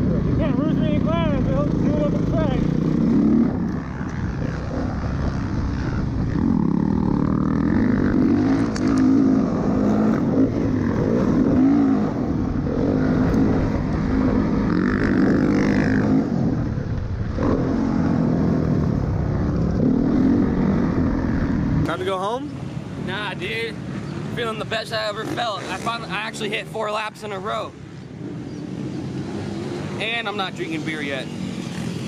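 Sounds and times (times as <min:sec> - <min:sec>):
dirt bike engine revving: 0:00.0 - 0:22.1, 0:23.0 - 0:26.5.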